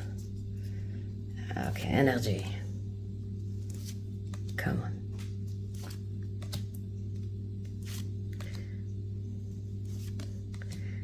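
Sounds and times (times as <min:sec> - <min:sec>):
steady electrical hum: 0:00.0 - 0:11.0
cards flicking and rustling: 0:03.6 - 0:08.8, 0:09.8 - 0:11.0.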